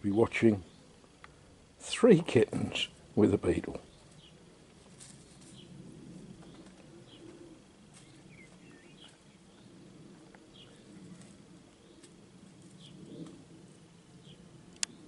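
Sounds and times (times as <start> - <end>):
low steady hum: 0.0 - 15.0
faint bird chirps: 6.4 - 9.9, 10.5 - 11.2.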